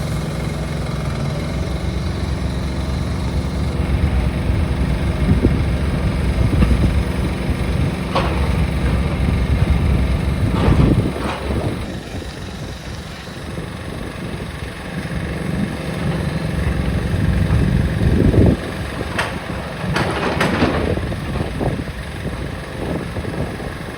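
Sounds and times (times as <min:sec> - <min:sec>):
heavy machinery engine running: 0:00.0 - 0:23.9
sharp knocks and cracks: 0:19.1 - 0:21.0.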